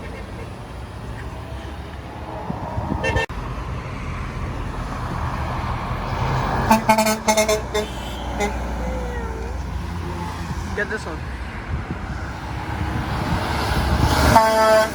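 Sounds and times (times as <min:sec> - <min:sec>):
road traffic: 0:00.0 - 0:14.9
truck passing: 0:00.0 - 0:14.9
truck horn blasts: 0:03.0 - 0:03.3, 0:06.6 - 0:08.8, 0:14.2 - 0:14.9.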